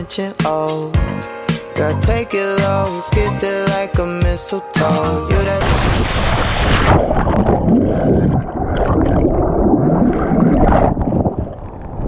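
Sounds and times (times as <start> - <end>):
background music: 0.0 - 5.9.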